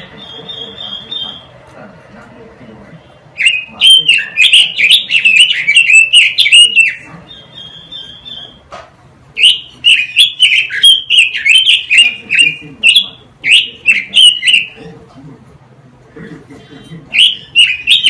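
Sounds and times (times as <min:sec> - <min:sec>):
songbird warbling: 0:03.4 - 0:08.6, 0:09.4 - 0:14.8, 0:17.1 - 0:18.0.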